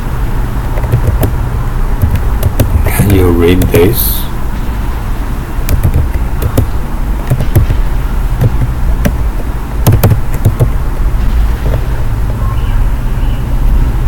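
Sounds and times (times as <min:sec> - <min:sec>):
sharp clicks: 0:00.7 - 0:01.4, 0:02.0 - 0:03.8, 0:05.7 - 0:07.8, 0:08.4 - 0:10.8.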